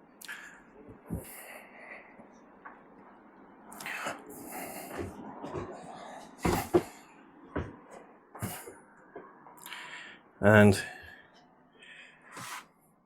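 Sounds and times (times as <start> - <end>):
knocks and thuds: 6.4 - 9.3.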